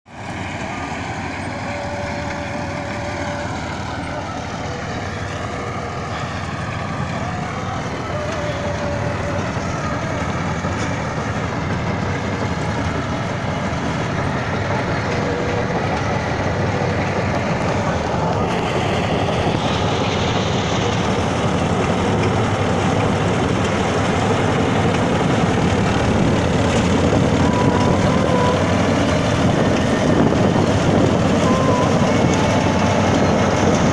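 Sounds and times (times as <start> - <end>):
harvesting machine running: 0.1 - 33.9.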